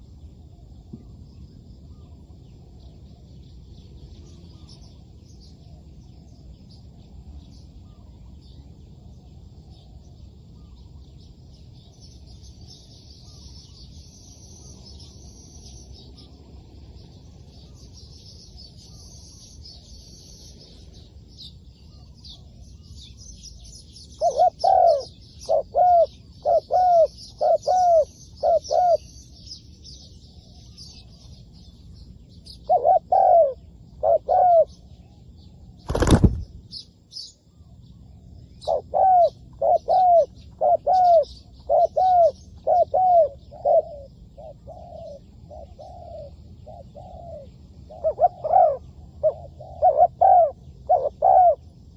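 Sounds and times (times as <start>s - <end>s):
small birds chirping: 0.0s - 51.9s
doves cooing: 24.2s - 29.1s, 32.7s - 34.8s, 38.6s - 51.7s.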